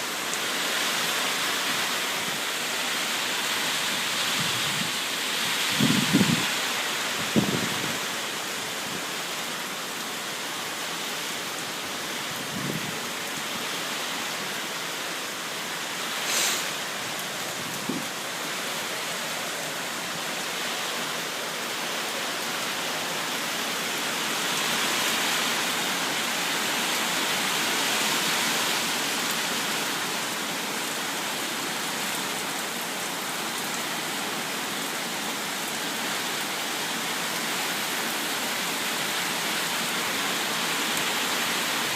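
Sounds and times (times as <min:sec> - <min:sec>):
heavy rain hissing: 0:00.0 - 0:41.9.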